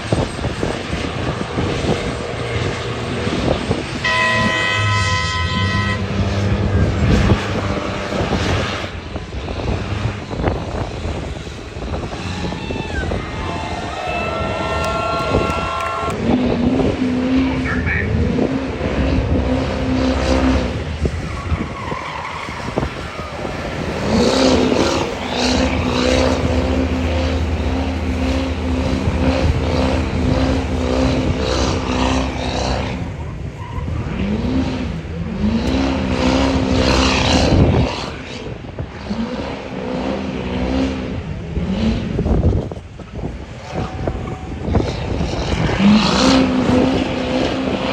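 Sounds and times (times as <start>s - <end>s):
diesel truck engine revving: 0.0s - 47.9s.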